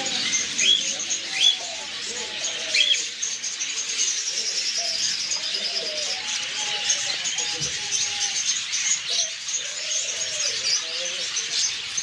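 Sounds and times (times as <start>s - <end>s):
caged birds chirping: 0.0s - 12.0s.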